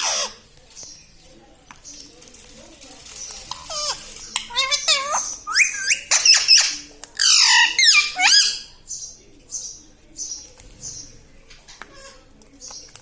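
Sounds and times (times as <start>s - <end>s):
parrot squawking: 0.0s - 0.4s, 3.5s - 8.7s.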